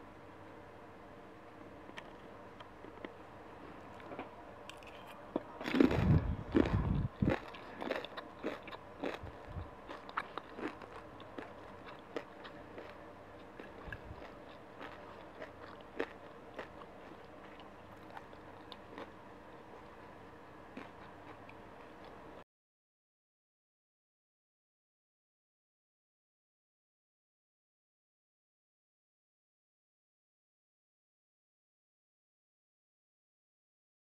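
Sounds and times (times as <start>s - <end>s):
crunching and chewing crispy food: 1.8s - 22.4s.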